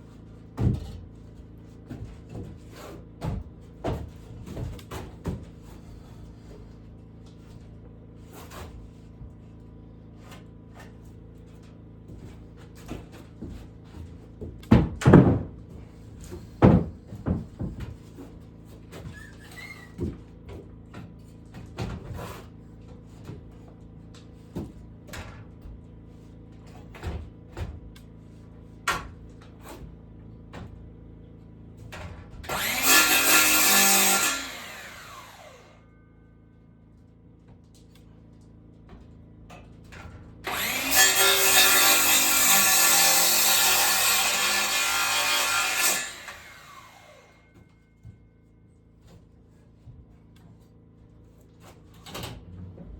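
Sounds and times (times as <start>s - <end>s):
wood and tools clattering: 0.0s - 9.6s, 10.2s - 30.9s, 31.8s - 35.8s, 37.1s - 48.2s
power tool motor: 32.5s - 35.8s, 40.5s - 47.4s.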